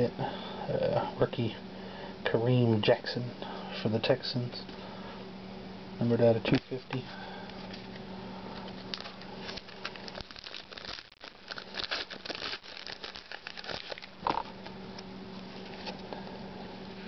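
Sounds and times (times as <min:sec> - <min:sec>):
cards being handled: 0:06.4 - 0:16.2
foil pack crinkling and tearing: 0:08.5 - 0:14.8.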